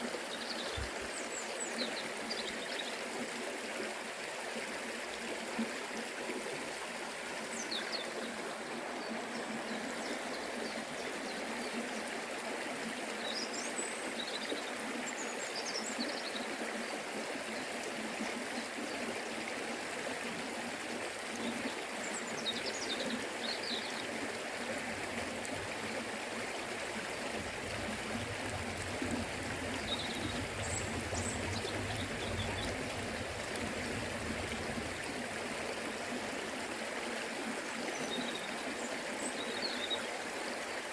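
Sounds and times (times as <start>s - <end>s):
river water rushing: 16.8s - 40.9s.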